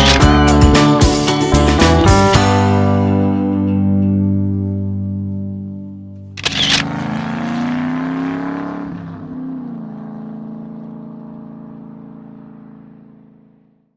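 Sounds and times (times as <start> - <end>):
car engine starting and revving: 0.0 - 3.0, 6.2 - 13.8.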